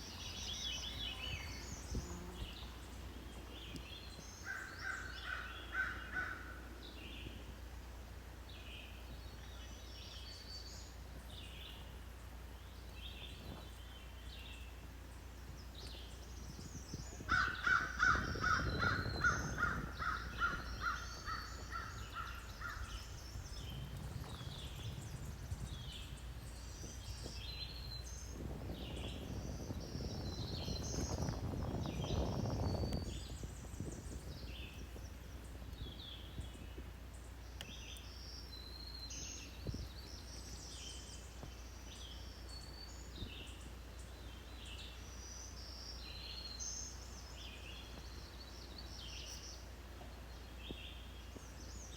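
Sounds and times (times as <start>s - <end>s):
wild birds singing: 0.0s - 51.9s
loud harsh bird calls: 17.2s - 23.2s.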